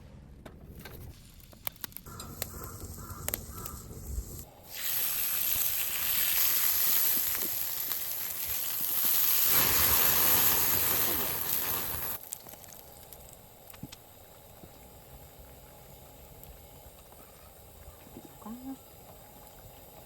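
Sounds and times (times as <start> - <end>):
meat sizzling on grill pan: 2.4 - 12.8.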